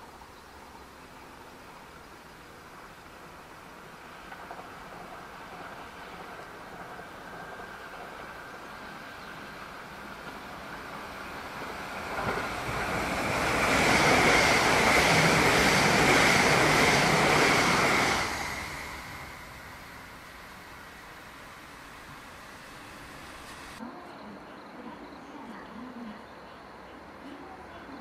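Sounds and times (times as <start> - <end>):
train rushing past: 0.0 - 23.9.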